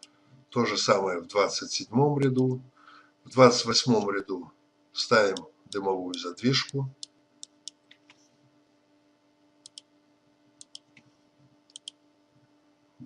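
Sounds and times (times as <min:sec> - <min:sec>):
faint low hum: 0:00.0 - 0:13.0
faint sharp clicks: 0:11.7 - 0:12.0.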